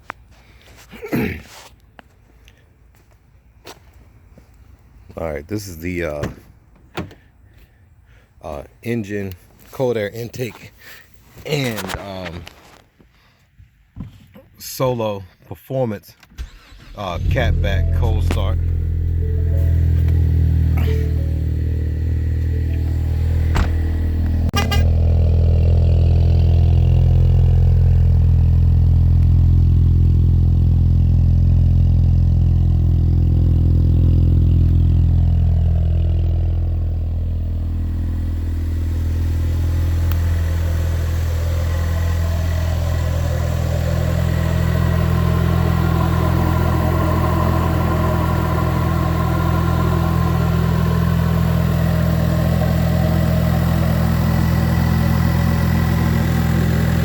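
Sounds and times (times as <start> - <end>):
car engine idling: 16.4 - 57.0.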